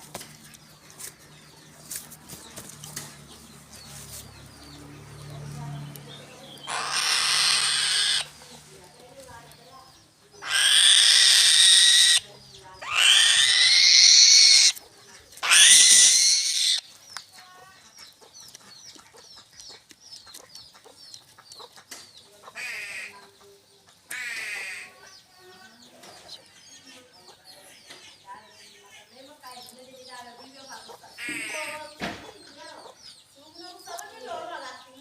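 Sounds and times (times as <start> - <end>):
buzzy bird calls: 0.0 - 35.0
bird calling loudly: 6.3 - 8.4, 10.4 - 14.8, 15.4 - 16.9, 30.8 - 33.0.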